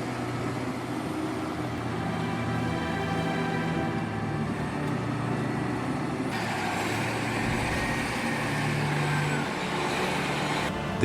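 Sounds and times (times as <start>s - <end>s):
diesel engine running under load: 0.0s - 11.0s.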